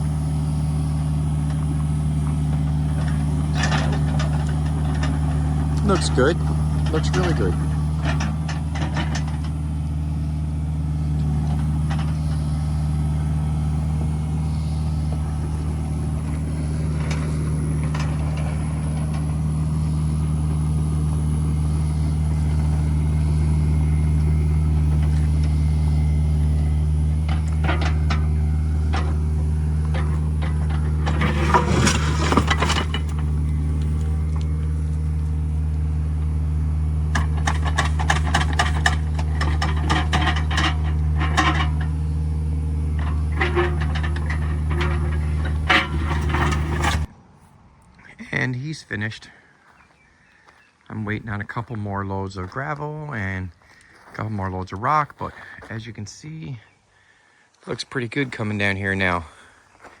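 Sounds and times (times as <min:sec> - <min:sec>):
heavy diesel equipment running: 0:00.0 - 0:47.1
gravel and rock scraping: 0:00.0 - 0:47.2, 0:48.9 - 0:56.4
knocks and clanking: 0:01.4 - 0:09.7, 0:22.2 - 0:47.1.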